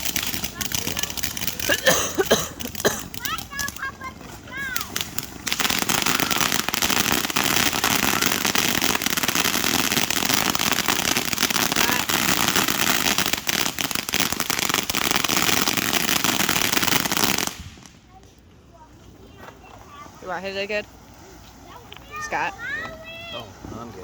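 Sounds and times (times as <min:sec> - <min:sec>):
fireworks crackling: 0:00.0 - 0:24.0.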